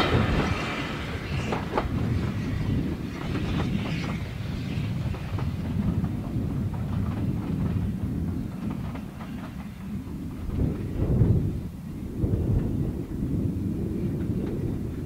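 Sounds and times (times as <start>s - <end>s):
train wheels clicking over rail joints: 0.0s - 10.5s
steam train low rumble: 0.0s - 15.0s.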